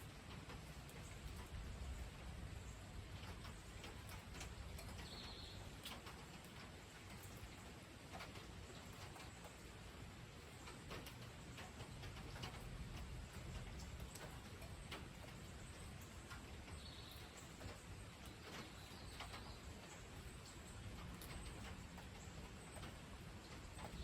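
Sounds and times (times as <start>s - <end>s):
raindrops ticking: 0.0s - 24.0s
faint bird chirp: 4.8s - 5.7s, 15.3s - 22.9s.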